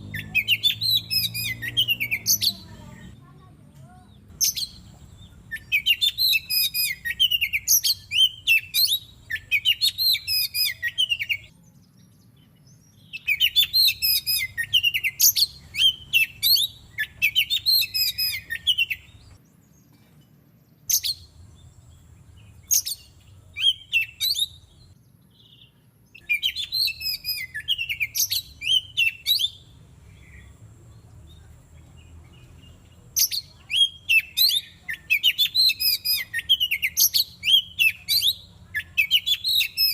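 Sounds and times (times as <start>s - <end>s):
songbird whistling: 0.1s - 2.7s, 4.4s - 11.5s, 12.7s - 19.4s, 22.4s - 30.6s, 33.2s - 39.9s.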